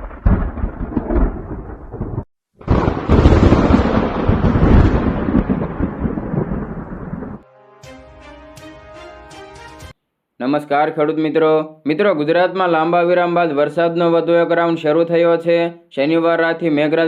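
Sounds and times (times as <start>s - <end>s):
thunder rumbling: 0.0s - 7.4s.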